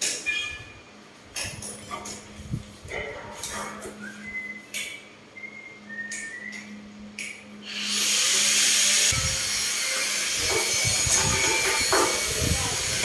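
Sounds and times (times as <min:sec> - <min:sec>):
cordless drill motor whine: 0:07.6 - 0:13.0.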